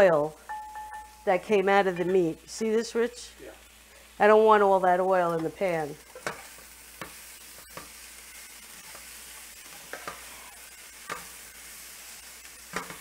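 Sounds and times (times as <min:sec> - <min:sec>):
meat sizzling in a skillet: 0:00.0 - 0:13.0
spatula scraping a pan: 0:05.4 - 0:13.0.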